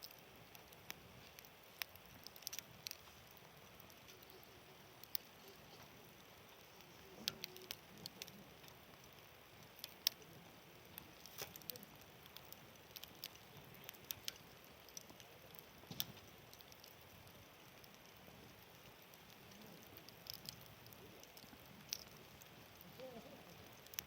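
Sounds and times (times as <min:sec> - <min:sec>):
campfire crackling and popping: 0:00.0 - 0:24.0
campfire hiss: 0:00.0 - 0:24.0.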